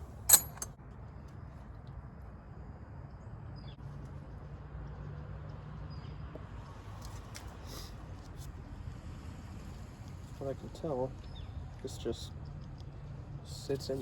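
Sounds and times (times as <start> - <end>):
wrench clinking on metal: 0.0 - 0.7
wrench clicks: 0.2 - 0.7.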